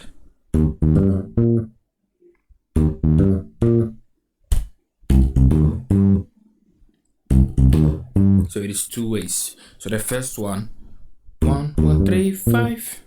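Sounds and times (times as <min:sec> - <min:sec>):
electric bass guitar plucked notes: 0:00.5 - 0:01.8, 0:02.7 - 0:06.3, 0:07.3 - 0:08.5, 0:11.4 - 0:12.8.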